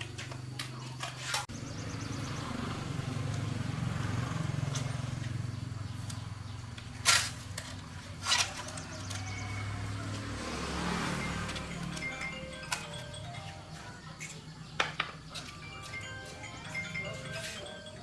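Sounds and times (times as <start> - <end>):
engine pulsing rumble: 1.5 - 13.2.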